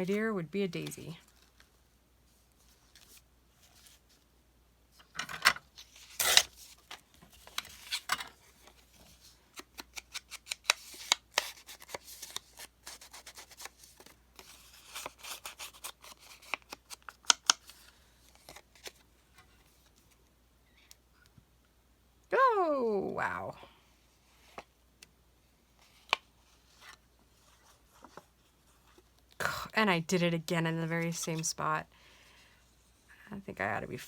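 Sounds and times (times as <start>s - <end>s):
paper rustling: 5.8s - 20.2s.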